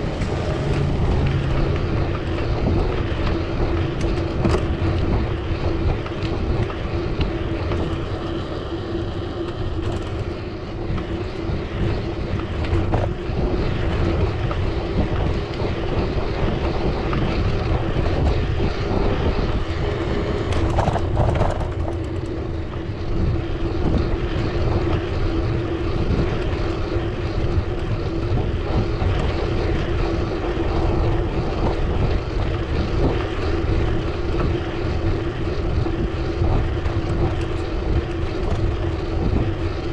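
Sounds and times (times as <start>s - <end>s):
steady hum: 0.0s - 14.9s
road and wind noise: 0.0s - 39.9s.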